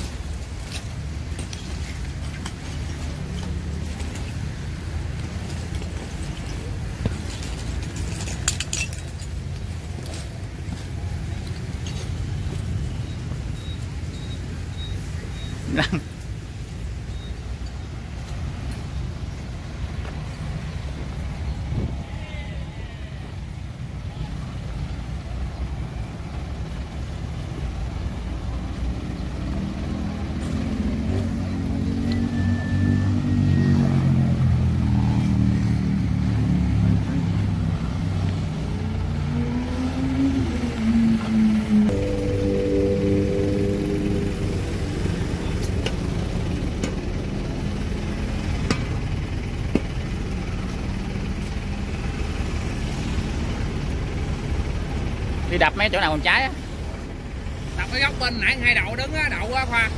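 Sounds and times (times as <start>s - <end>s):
fire truck engine rumbling: 0.0s - 59.9s
steady engine hum: 0.0s - 59.9s
fire engine motor running: 37.0s - 59.0s.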